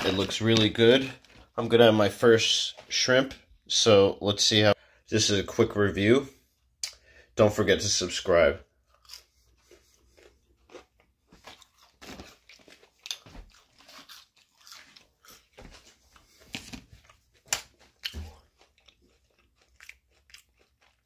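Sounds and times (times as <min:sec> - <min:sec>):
crunching fried shrimp: 0:08.7 - 0:21.0.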